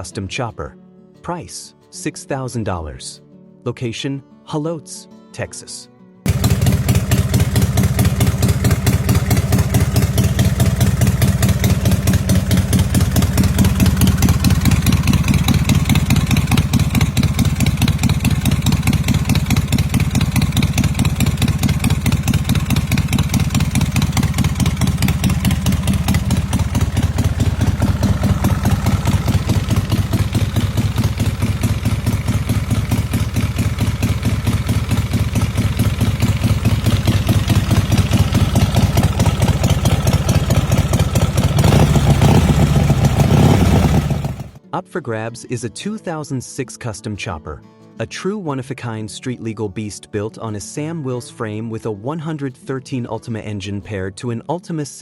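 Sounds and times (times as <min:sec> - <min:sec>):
motorcycle engine idling: 0:06.3 - 0:44.6.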